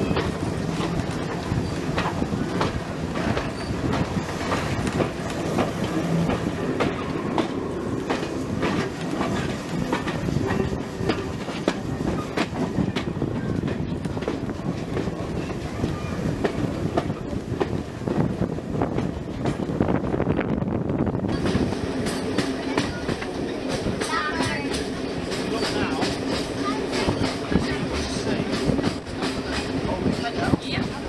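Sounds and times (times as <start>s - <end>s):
train carriages rumbling: 0.0s - 31.0s.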